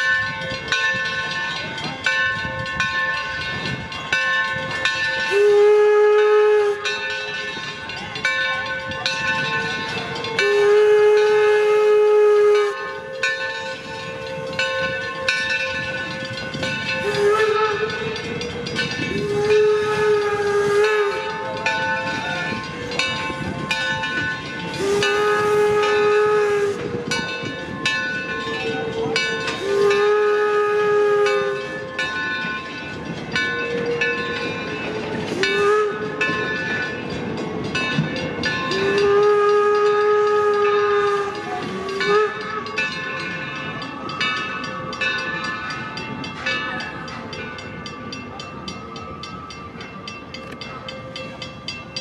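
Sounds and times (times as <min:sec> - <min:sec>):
running train clatter: 0:00.0 - 0:52.0
steam locomotive whistle blasts: 0:04.8 - 0:07.5, 0:09.4 - 0:32.3, 0:33.6 - 0:37.0, 0:38.4 - 0:45.4
steam hiss: 0:09.2 - 0:27.8.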